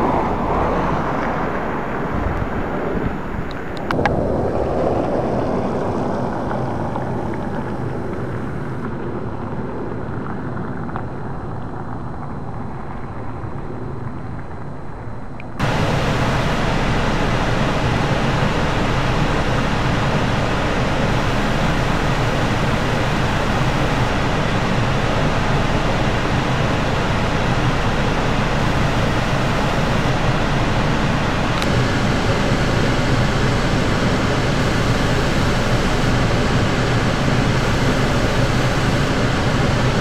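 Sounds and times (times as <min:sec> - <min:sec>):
distant rail traffic: 0:00.0 - 0:40.0
electric train rumble: 0:00.0 - 0:40.0
wind on microphone: 0:00.0 - 0:40.0.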